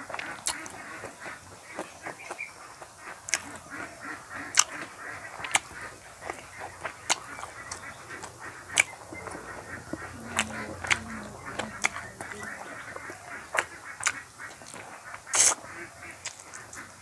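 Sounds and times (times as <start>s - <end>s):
wet chewing: 0.0s - 16.9s
lip smacking: 0.1s - 1.1s, 3.3s - 3.7s, 4.4s - 15.6s.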